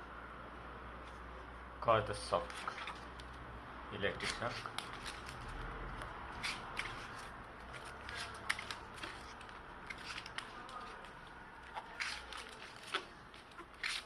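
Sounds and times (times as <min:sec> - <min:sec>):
tape crackling and clicking: 0:04.2 - 0:14.0.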